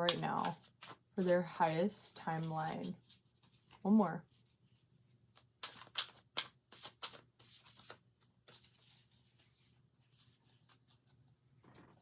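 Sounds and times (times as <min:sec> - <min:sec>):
cards flicking and slapping: 0:05.5 - 0:08.6
cards rustling: 0:05.6 - 0:09.6.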